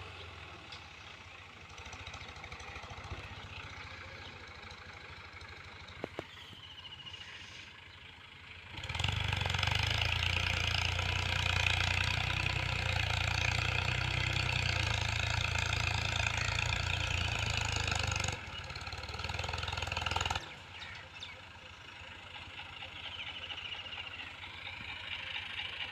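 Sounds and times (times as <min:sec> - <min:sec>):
tractor diesel engine running: 0:00.0 - 0:25.9.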